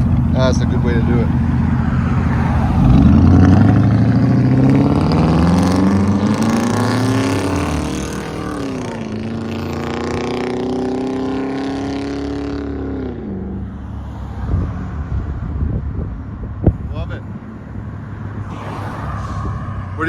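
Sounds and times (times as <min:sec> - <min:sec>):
pickup truck engine accelerating: 0:00.0 - 0:13.5.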